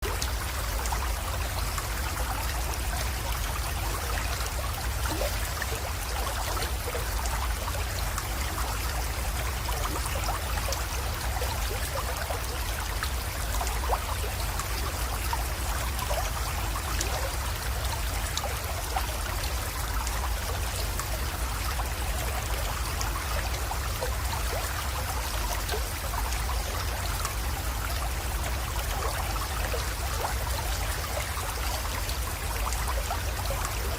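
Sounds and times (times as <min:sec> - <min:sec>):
creek water trickling: 0:00.0 - 0:33.9.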